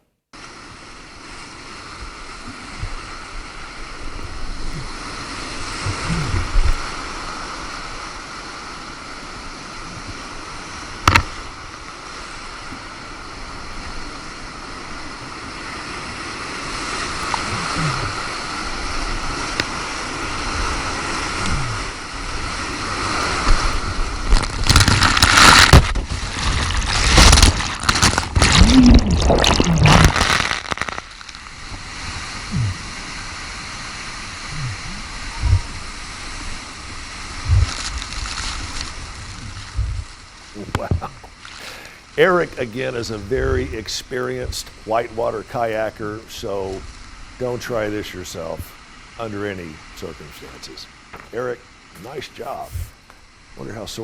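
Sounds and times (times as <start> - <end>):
rushing whitewater: 0.4 - 54.0
wind buffeting microphone: 31.7 - 41.3, 43.0 - 44.7.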